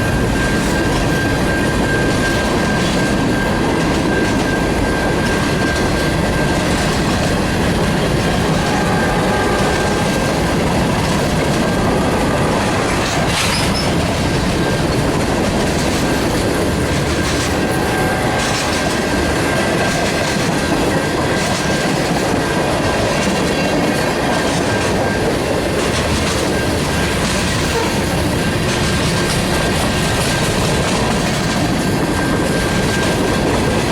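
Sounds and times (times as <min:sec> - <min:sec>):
train wheels clattering on rails: 0:00.0 - 0:33.9
high-pitched wheel squeal: 0:08.3 - 0:14.9.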